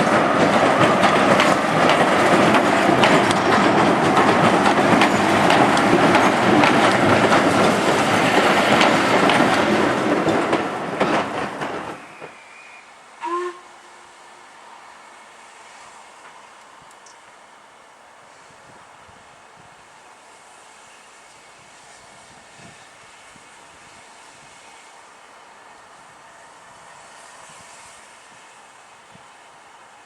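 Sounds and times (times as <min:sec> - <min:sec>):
steam train wheels clattering: 0:00.0 - 0:13.7, 0:19.6 - 0:30.0
train whistle toot: 0:12.0 - 0:14.4.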